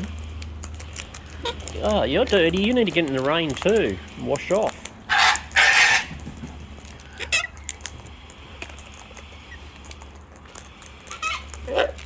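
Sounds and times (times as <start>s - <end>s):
light ticking and pattering: 0.0s - 12.0s
cockatoo screeching: 5.1s - 6.2s, 7.0s - 8.0s, 11.0s - 12.0s.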